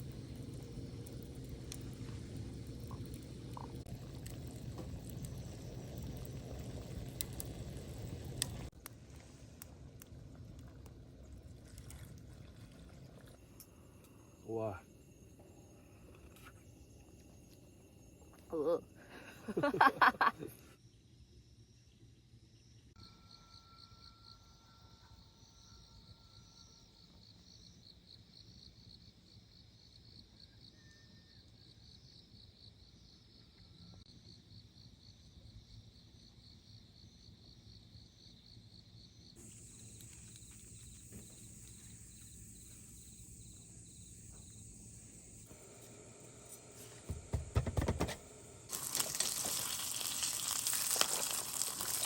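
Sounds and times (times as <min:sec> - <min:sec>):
faint insects chirping: 0:00.0 - 0:52.0
steady high hiss: 0:39.4 - 0:47.4.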